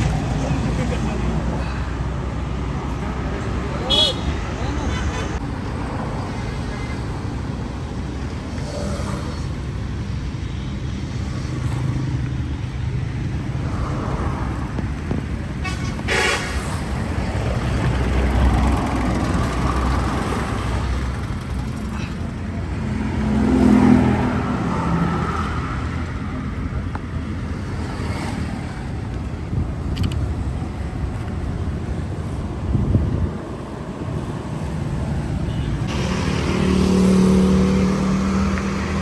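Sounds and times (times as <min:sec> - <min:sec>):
road traffic rumble: 0:00.0 - 0:39.0
vehicle horn toot: 0:03.9 - 0:05.4, 0:15.6 - 0:16.7, 0:35.5 - 0:36.1
vehicle passing close: 0:35.9 - 0:39.0.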